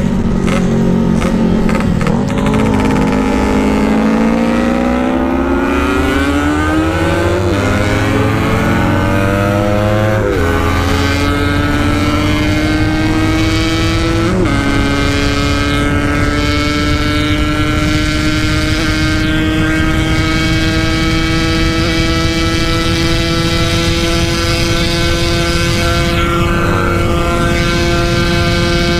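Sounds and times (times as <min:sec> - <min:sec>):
two-stroke motorcycle engine revving: 0:00.0 - 0:28.9.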